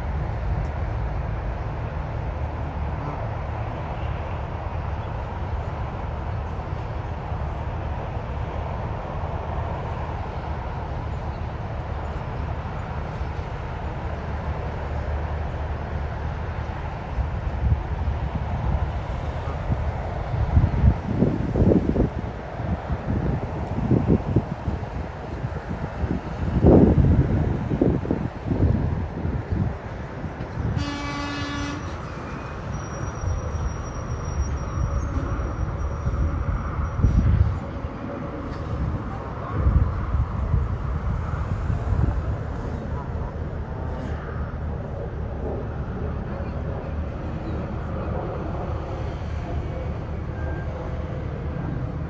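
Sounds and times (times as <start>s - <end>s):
horn blast: 30.7s - 32.2s.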